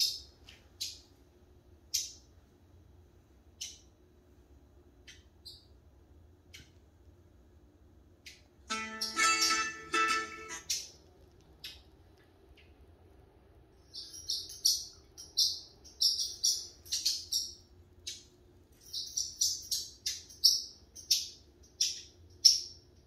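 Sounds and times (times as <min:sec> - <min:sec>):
small bird chirping: 0:00.0 - 0:01.2, 0:01.8 - 0:02.3, 0:03.5 - 0:04.0, 0:05.0 - 0:06.8, 0:08.2 - 0:11.0, 0:13.8 - 0:23.0.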